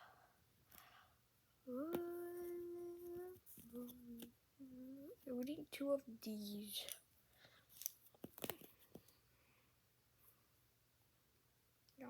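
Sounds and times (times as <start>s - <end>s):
person humming: 1.7s - 5.2s.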